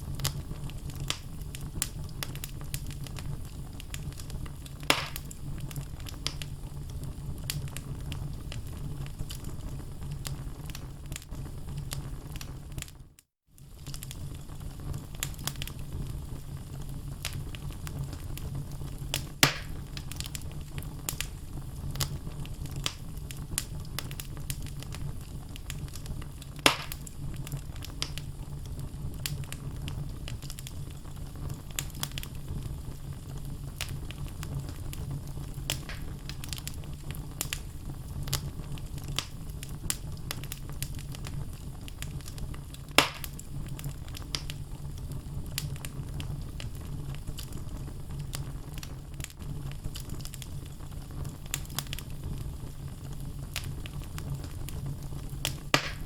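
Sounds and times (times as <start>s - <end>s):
fire rumbling in a fireplace: 0.0s - 56.0s
loud pops from fire: 0.0s - 56.0s
logs crackling: 0.1s - 6.5s, 19.1s - 20.4s, 21.0s - 28.2s, 33.8s - 44.6s, 55.4s - 56.0s.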